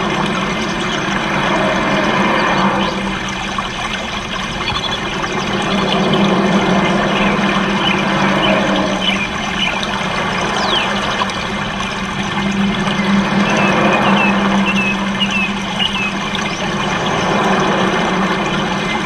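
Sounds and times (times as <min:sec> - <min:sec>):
low hum: 0:00.0 - 0:19.0
cage birds chirping: 0:10.6 - 0:11.0, 0:13.5 - 0:16.1.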